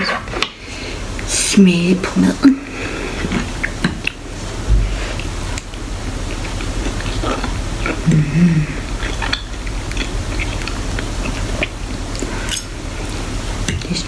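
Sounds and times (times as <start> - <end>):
person chewing: 3.0 - 13.8
person humming: 8.0 - 9.0.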